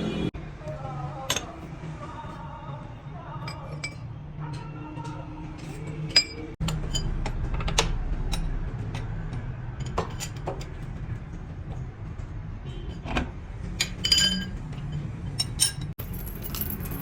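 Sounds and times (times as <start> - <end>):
tools tapping on metal: 5.6 - 9.1, 13.8 - 17.0.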